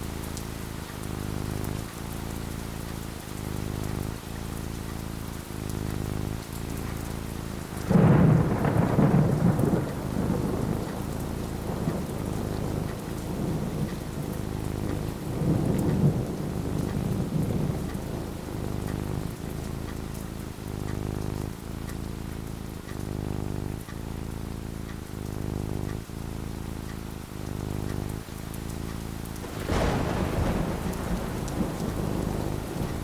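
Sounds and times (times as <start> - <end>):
steady rain falling: 0.0 - 33.0
thunder rumbling: 5.9 - 21.8, 29.2 - 33.0.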